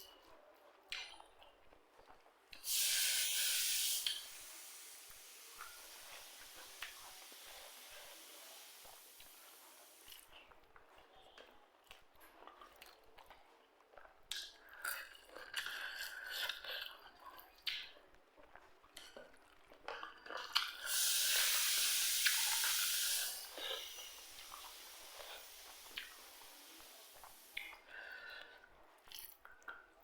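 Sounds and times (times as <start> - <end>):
loud steady hiss: 2.6 - 10.2, 20.9 - 27.7
chewing and crunching: 10.0 - 20.8.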